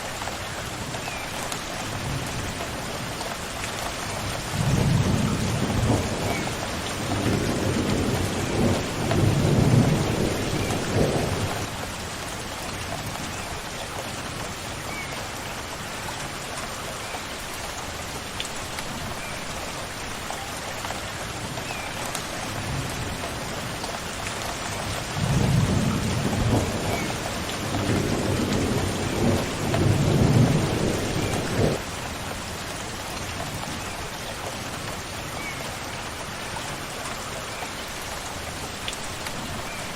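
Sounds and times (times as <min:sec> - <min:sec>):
steady rain falling: 0:00.0 - 0:39.9
thunder rumbling: 0:25.2 - 0:31.8.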